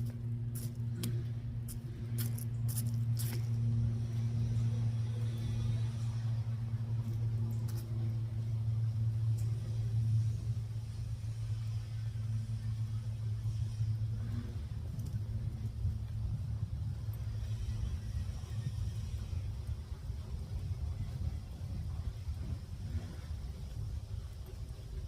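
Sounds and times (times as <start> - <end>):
vehicle engine rumble: 0.0 - 25.0.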